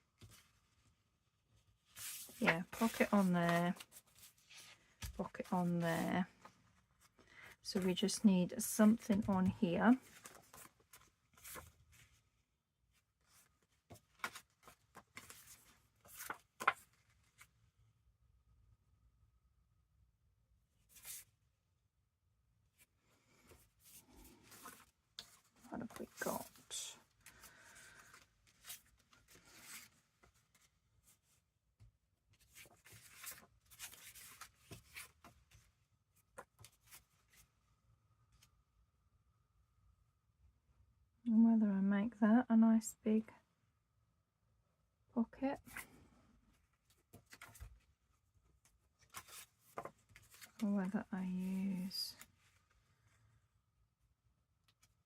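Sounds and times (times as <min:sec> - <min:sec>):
paper rustling: 0:01.6 - 0:08.0, 0:08.9 - 0:12.2, 0:13.2 - 0:17.5, 0:23.4 - 0:31.4, 0:32.4 - 0:37.5, 0:46.8 - 0:47.9, 0:48.5 - 0:50.7.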